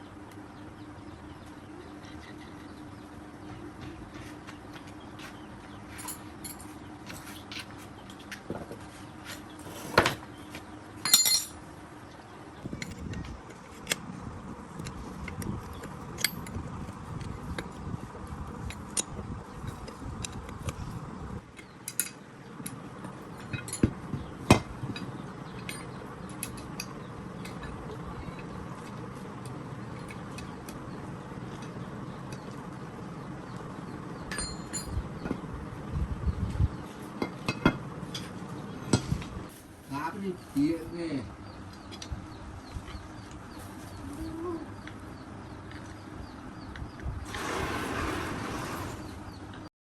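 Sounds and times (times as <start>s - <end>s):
hand tools clinking on metal: 11.0s - 11.6s, 34.3s - 35.0s.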